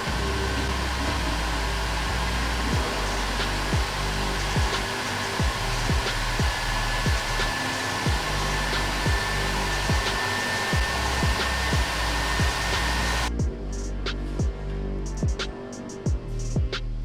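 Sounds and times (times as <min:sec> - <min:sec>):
rushing hiss of blown air: 0:00.0 - 0:13.3
music with thumping beat: 0:02.7 - 0:17.0.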